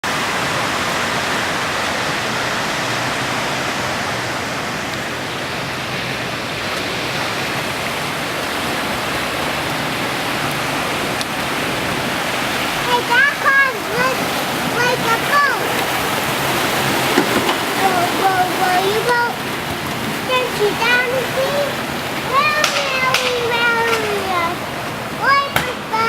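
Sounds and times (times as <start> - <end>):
storm wind rushing: 0.2 - 26.0.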